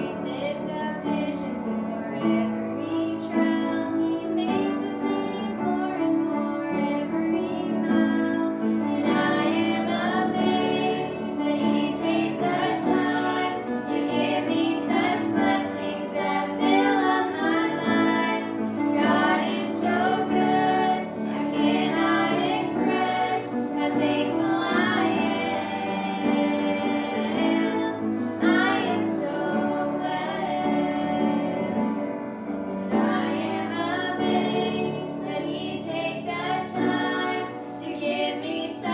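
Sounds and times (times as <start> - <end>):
instrumental accompaniment: 8.0 - 38.9.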